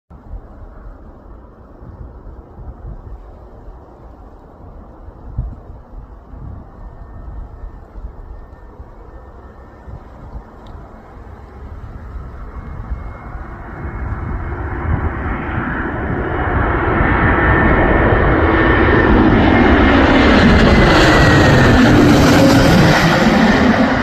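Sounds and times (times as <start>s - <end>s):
jet airliner engine whine: 0.1s - 24.0s.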